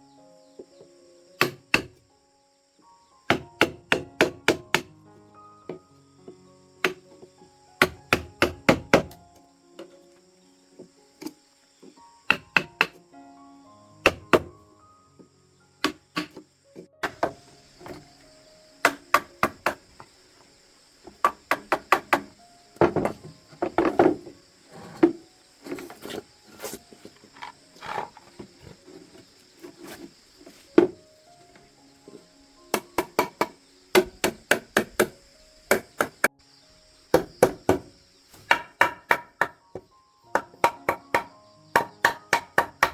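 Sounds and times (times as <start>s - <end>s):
sharp chopping knocks: 1.4s - 2.0s, 3.3s - 4.9s, 7.8s - 9.2s, 12.3s - 13.0s, 14.1s - 14.5s, 18.9s - 19.8s, 40.4s - 42.9s.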